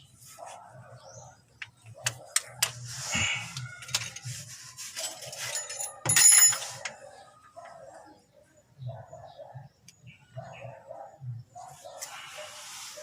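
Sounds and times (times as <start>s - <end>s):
metal tools clicking and clinking: 5.0s - 7.0s.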